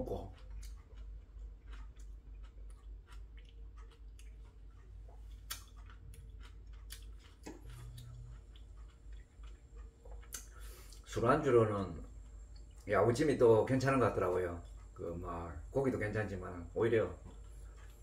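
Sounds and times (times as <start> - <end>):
faint room hum: 0.0 - 18.0
man chewing crunchy food: 0.0 - 18.0.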